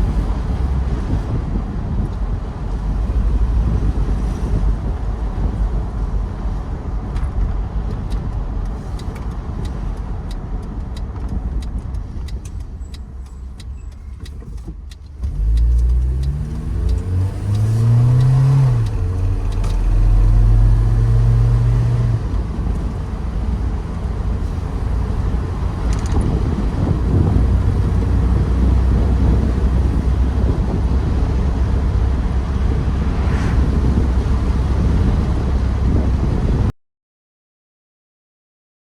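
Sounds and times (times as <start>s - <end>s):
car engine accelerating: 0.0s - 36.7s
road noise: 0.0s - 36.7s.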